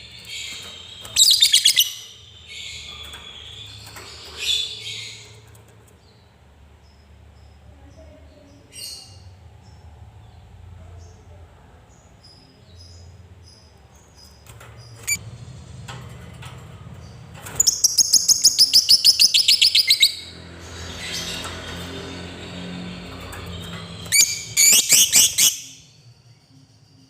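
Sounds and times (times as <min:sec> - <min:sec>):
bird chirps: 0:00.0 - 0:06.2, 0:12.2 - 0:15.2, 0:17.5 - 0:22.3, 0:23.0 - 0:27.0.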